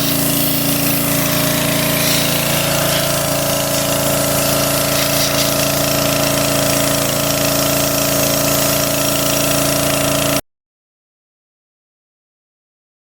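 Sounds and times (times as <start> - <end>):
machine motor running: 0.0 - 10.4.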